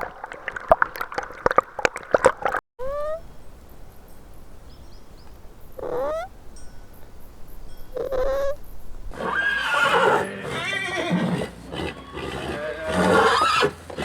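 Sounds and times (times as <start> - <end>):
animal calling: 2.8 - 3.3, 5.7 - 6.4, 7.8 - 14.0.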